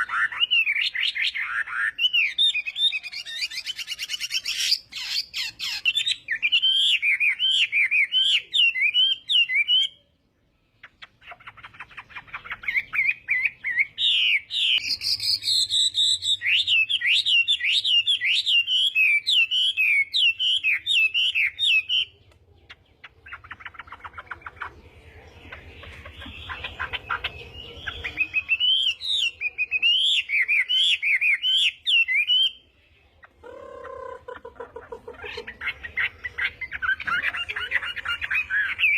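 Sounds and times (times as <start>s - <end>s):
bird warbling: 19.4s - 32.5s, 33.2s - 38.9s.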